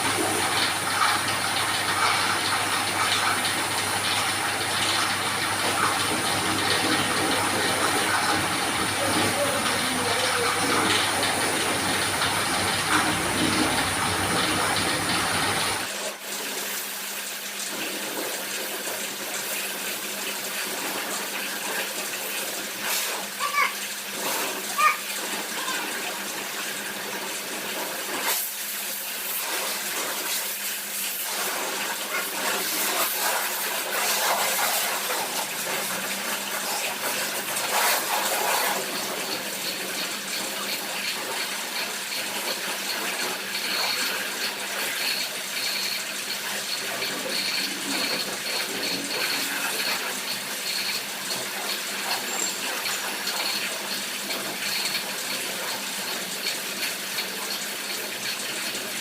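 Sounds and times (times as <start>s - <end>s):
pressure washer spraying water: 0.0s - 17.1s, 27.7s - 56.2s
pump motor hum: 0.0s - 59.0s.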